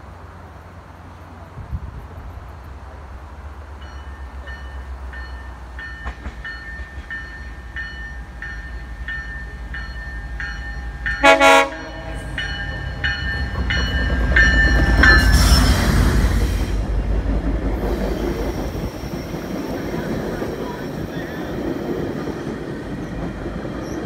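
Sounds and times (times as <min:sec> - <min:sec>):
locomotive bell ringing: 0:03.8 - 0:16.2
train horn toot: 0:11.2 - 0:12.4.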